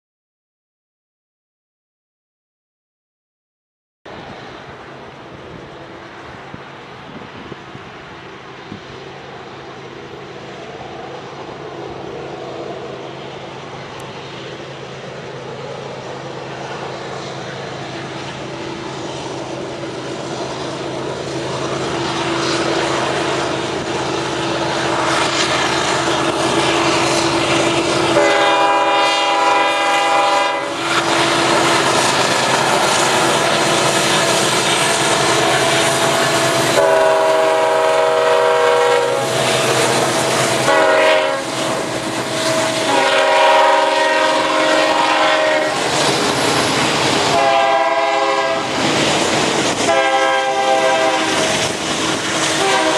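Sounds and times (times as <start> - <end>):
diesel locomotive engines rumbling: 4.1 - 52.9
locomotive horn blast: 26.6 - 31.8, 34.3 - 45.9, 47.2 - 48.8, 49.8 - 51.6, 52.4 - 52.9.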